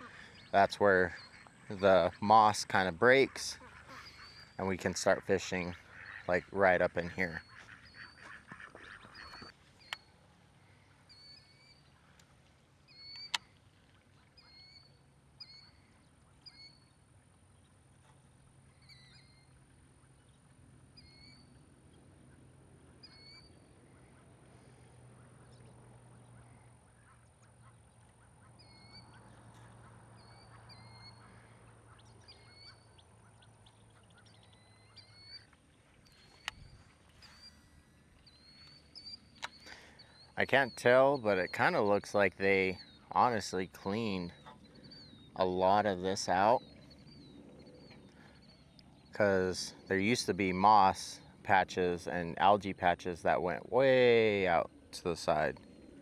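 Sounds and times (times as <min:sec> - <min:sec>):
ducks calling faintly: 0:00.0 - 0:56.0
low steady hum: 0:00.0 - 0:56.0.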